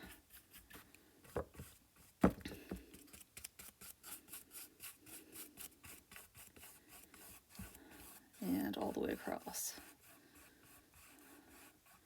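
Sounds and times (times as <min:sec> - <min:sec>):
paintbrush scrubbing canvas: 0:02.9 - 0:12.0.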